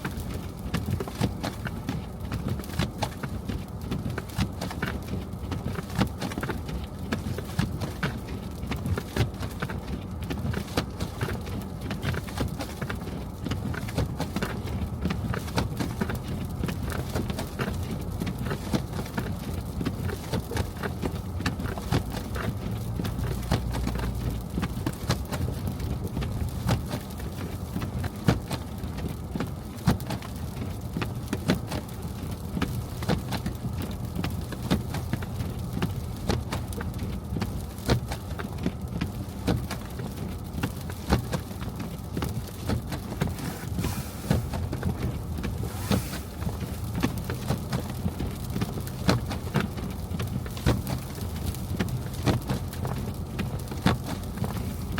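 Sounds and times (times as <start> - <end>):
car road rumble: 0.0 - 54.9.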